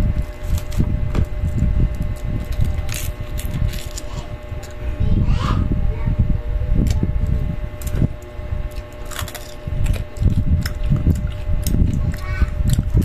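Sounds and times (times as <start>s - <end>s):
chewing crispy fried fish: 1.4s - 4.8s, 7.7s - 13.0s.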